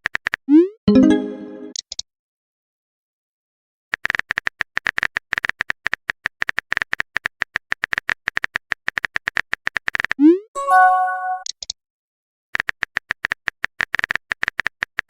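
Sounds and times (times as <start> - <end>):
electronic chime: 0.9 - 1.7, 10.6 - 11.4.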